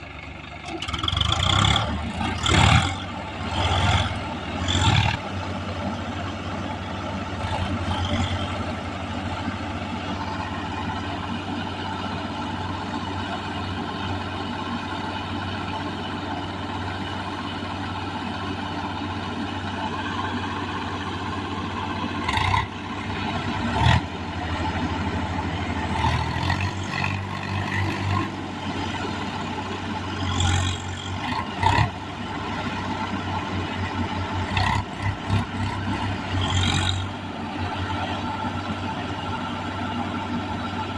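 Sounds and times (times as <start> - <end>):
tractor diesel engine revving: 0.0 - 40.9.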